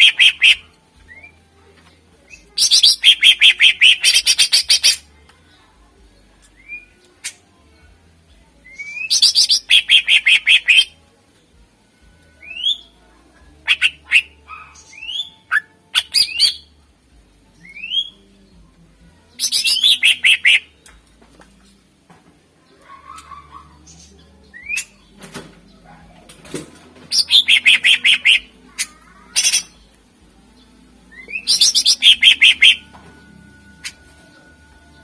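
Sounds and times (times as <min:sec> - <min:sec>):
bird singing loudly: 0:00.0 - 0:01.3, 0:02.6 - 0:05.0, 0:08.7 - 0:10.9, 0:19.4 - 0:20.7, 0:27.1 - 0:28.5, 0:31.1 - 0:32.9
whistled bird notes: 0:31.1 - 0:32.9.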